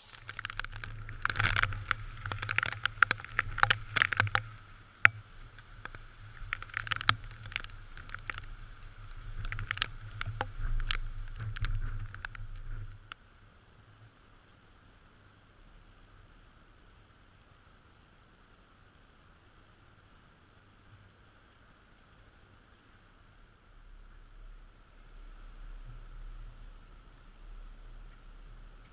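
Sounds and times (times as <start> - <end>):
rain tapping on camera housing: 0.0 - 13.2, 27.6 - 28.9.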